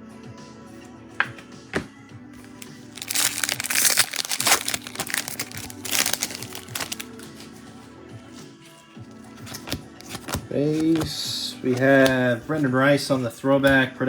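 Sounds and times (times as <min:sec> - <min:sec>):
background music: 0:00.0 - 0:14.0
foil wrapper crinkling and tearing: 0:02.4 - 0:07.5, 0:09.6 - 0:11.1.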